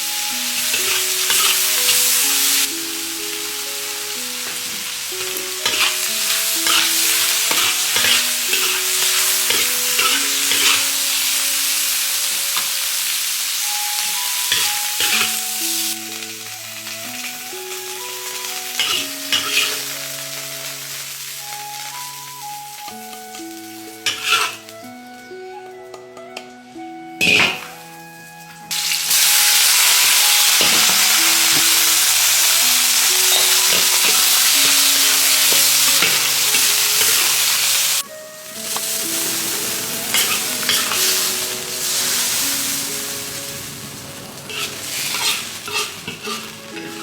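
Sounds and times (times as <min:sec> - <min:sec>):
food sizzling in pan: 0:00.0 - 0:25.2, 0:27.2 - 0:47.0
gentle melody: 0:00.0 - 0:47.0
spatula scraping pan: 0:00.6 - 0:02.2, 0:04.5 - 0:11.3, 0:14.5 - 0:15.4, 0:18.8 - 0:19.8, 0:24.1 - 0:24.7, 0:33.2 - 0:47.0.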